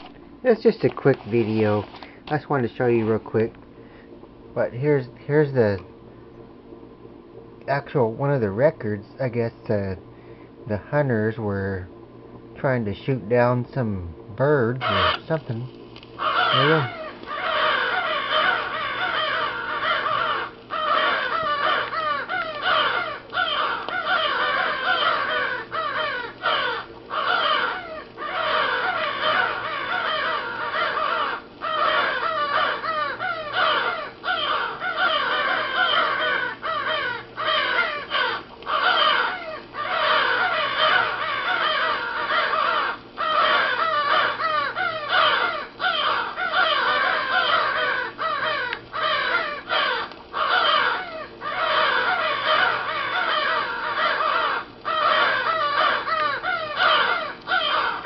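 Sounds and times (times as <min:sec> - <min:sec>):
crows cawing: 0:14.8 - 0:15.6, 0:16.2 - 0:58.0.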